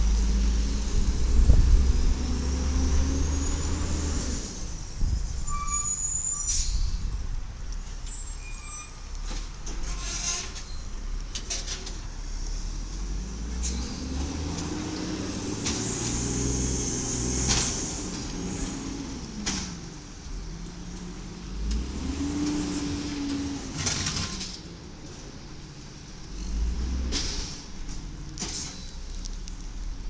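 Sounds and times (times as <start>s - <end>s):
garbage truck engine revving: 13.0s - 19.7s.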